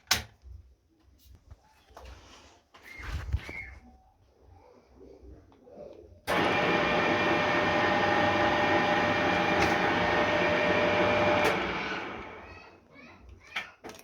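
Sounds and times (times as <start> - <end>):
milling machine running: 6.3 - 12.7.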